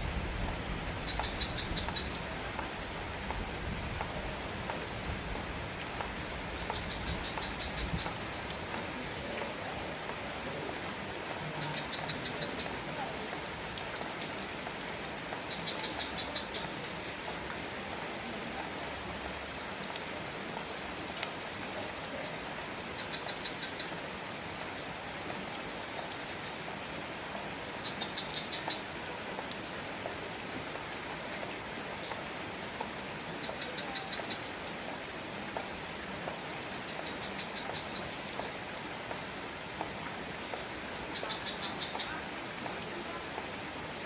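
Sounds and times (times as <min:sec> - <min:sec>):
steady rain falling: 0:00.0 - 0:44.0
sharp drip clicks: 0:01.0 - 0:04.8, 0:05.9 - 0:09.0, 0:36.8 - 0:42.2.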